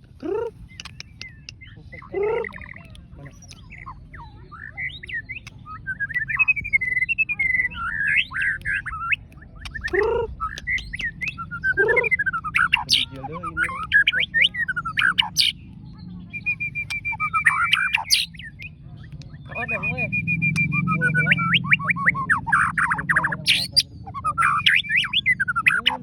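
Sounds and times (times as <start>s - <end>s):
bird singing whistles and chirps: 0.6s - 26.0s
loud swooping bird calls: 3.5s - 15.6s, 16.3s - 18.7s.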